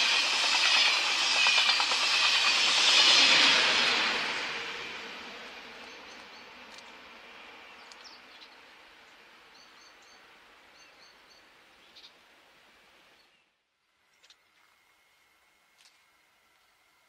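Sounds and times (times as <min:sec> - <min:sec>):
passing train running noise: 0:00.0 - 0:10.9.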